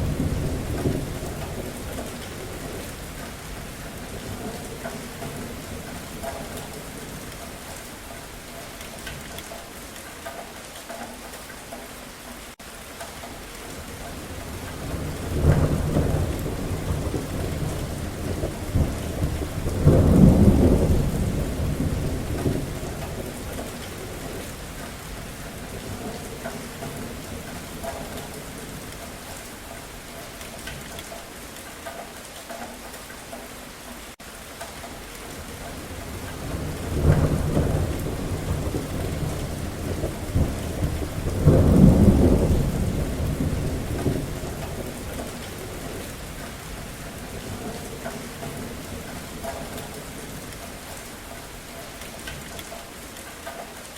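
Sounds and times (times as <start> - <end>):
thunder rumbling: 0.0 - 7.4, 13.8 - 29.4, 35.3 - 51.7
steady rain: 0.0 - 53.9.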